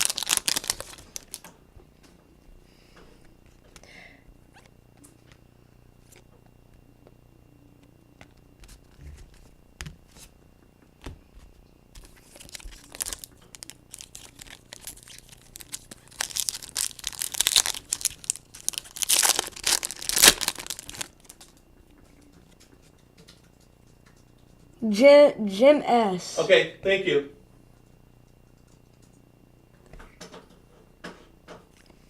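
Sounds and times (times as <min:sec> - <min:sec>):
foil wrappers tearing and crinkling: 0:00.0 - 0:01.5, 0:12.0 - 0:21.5.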